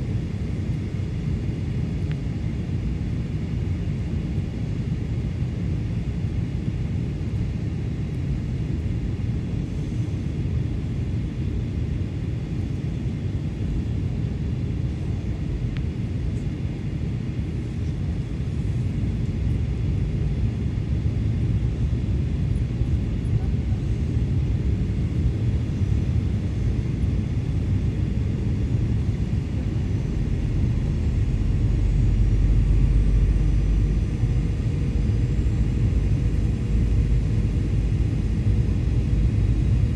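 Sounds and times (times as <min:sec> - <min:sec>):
aircraft cabin engine rumble: 0:00.0 - 0:39.9.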